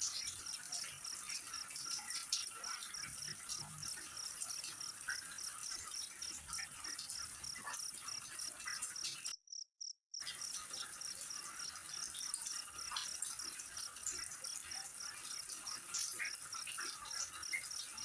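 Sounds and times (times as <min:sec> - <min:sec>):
cricket-like insect chirping: 0:00.0 - 0:18.0.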